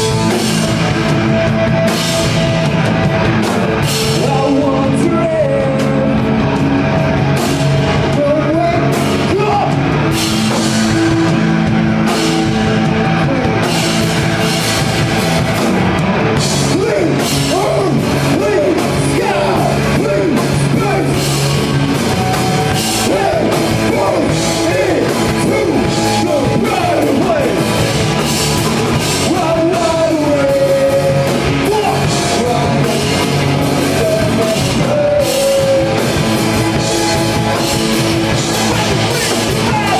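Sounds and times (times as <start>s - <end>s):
drums: 0.0s - 39.9s
electric guitar: 0.0s - 39.9s
rock band playing live: 0.0s - 39.9s
person singing: 4.0s - 6.7s, 16.4s - 27.9s, 28.9s - 39.9s.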